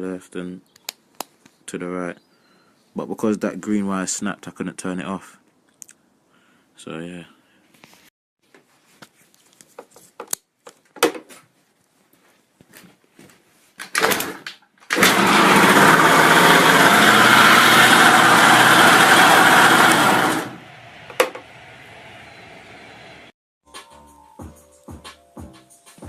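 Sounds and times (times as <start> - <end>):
engine cranking: 14.0 - 21.5
scooter engine running: 14.9 - 21.6.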